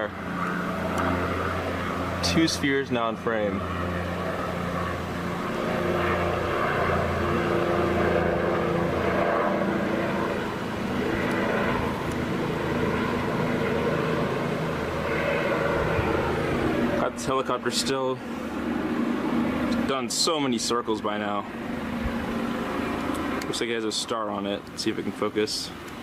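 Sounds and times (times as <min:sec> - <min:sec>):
helicopter engine and rotor drone: 0:00.0 - 0:26.0.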